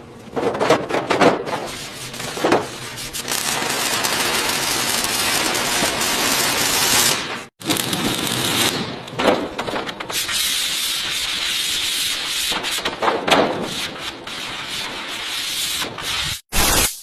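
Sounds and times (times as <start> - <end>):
sanding car bodywork: 1.6 - 7.1, 10.2 - 13.0.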